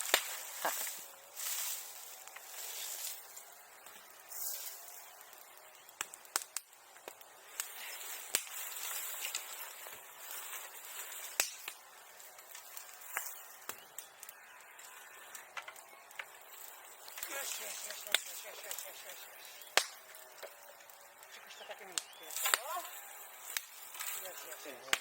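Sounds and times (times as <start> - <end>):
dry brush and leaves rustling: 0.0 - 25.0
twigs snapping and cracking: 0.0 - 25.0.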